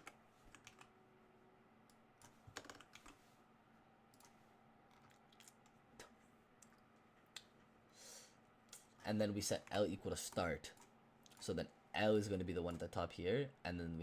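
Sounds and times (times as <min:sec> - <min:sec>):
typing on computer keyboard: 0:00.0 - 0:00.9, 0:02.5 - 0:03.2.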